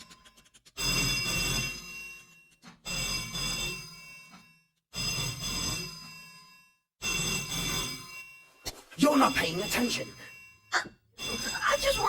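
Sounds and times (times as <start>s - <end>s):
telephone bell ringing: 0.8s - 12.0s.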